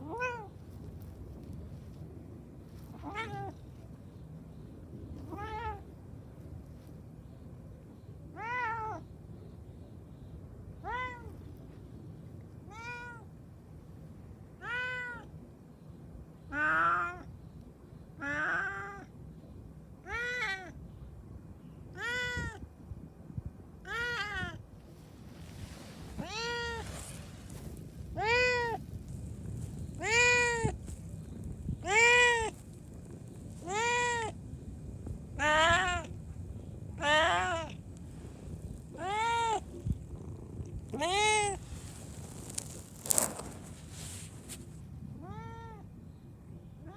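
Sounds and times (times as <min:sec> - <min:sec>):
cat meowing: 0:00.0 - 0:00.5, 0:03.0 - 0:03.6, 0:08.3 - 0:09.0, 0:12.7 - 0:13.2, 0:14.6 - 0:15.3, 0:20.0 - 0:20.8, 0:21.9 - 0:22.6, 0:23.8 - 0:24.6, 0:26.1 - 0:27.0, 0:28.1 - 0:28.8, 0:29.9 - 0:30.8, 0:31.8 - 0:32.6, 0:33.6 - 0:34.4, 0:35.4 - 0:36.1, 0:37.0 - 0:37.8, 0:38.9 - 0:40.0, 0:40.9 - 0:41.6, 0:45.2 - 0:45.8.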